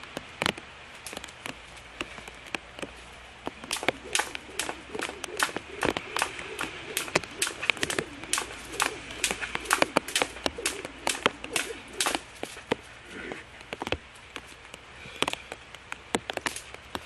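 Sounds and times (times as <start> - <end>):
jump rope slapping the ground: 3.5 - 12.8.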